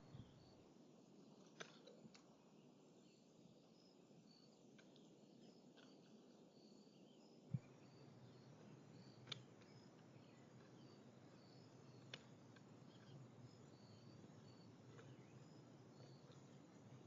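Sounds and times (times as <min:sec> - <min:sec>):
faint outdoor ambience: 0:00.0 - 0:17.0
sharp clicks: 0:09.0 - 0:17.0.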